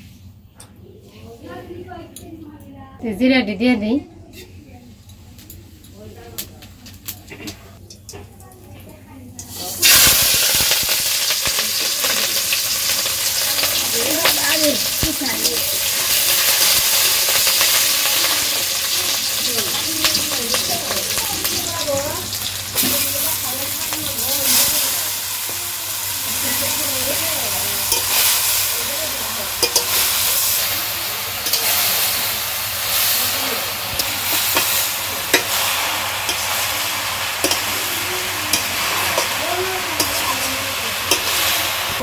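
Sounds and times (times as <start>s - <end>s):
metal spatula scraping a pan: 4.2s - 4.6s, 32.9s - 41.7s
food sizzling in hot oil: 9.4s - 42.0s.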